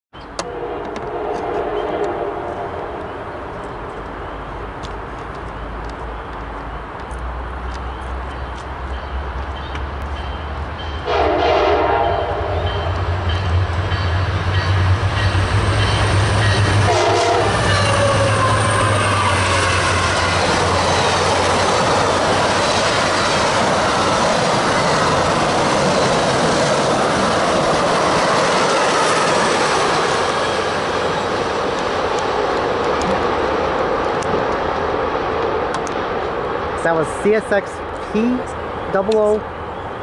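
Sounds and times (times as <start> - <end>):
locomotive engine drone: 0.2 - 40.0
train horn: 0.4 - 3.0, 11.0 - 13.0, 15.8 - 20.4
train cars clickety-clack: 2.9 - 39.4.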